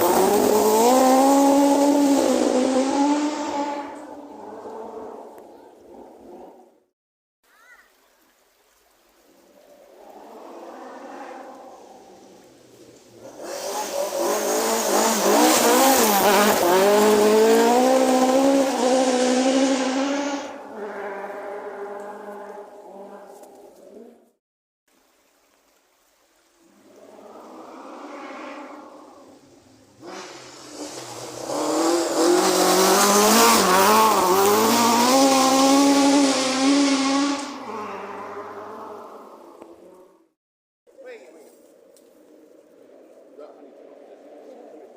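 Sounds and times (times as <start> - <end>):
rally car engine revving: 0.0 - 6.3, 13.2 - 24.2, 27.2 - 40.3.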